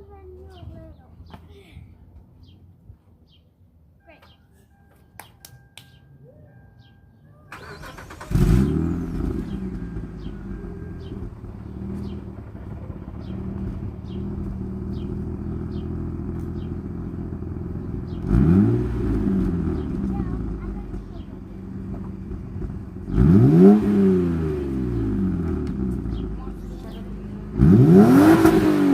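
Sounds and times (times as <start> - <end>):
car engine starting and idling: 6.8 - 28.9
engine revving: 7.5 - 28.9.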